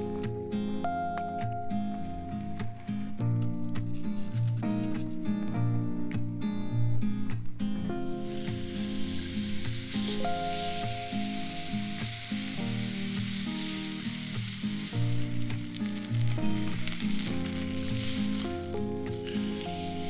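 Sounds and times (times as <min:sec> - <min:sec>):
background music: 0:00.0 - 0:20.0
food sizzling in a skillet: 0:03.4 - 0:05.2, 0:08.0 - 0:20.0.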